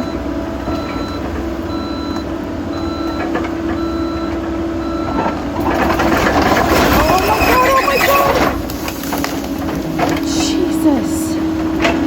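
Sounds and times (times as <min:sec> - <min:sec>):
excavator travel alarm beeping: 0:00.0 - 0:08.9
diesel engine hum: 0:00.0 - 0:12.0.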